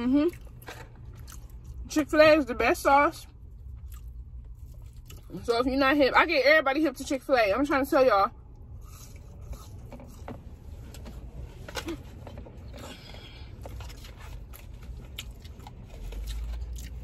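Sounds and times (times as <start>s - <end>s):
chewing fries: 0.0s - 1.9s, 3.4s - 5.5s, 11.7s - 17.0s
low rumble inside car: 0.0s - 17.0s.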